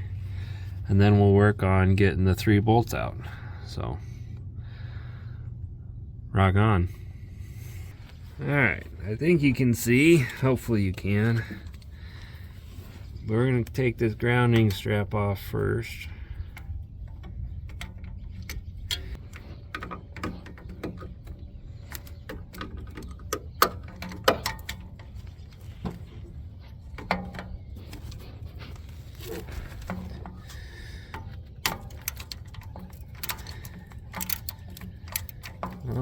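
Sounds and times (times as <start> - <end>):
steady low hum: 0.0 - 36.0
wrench clicking on metal: 31.6 - 35.9.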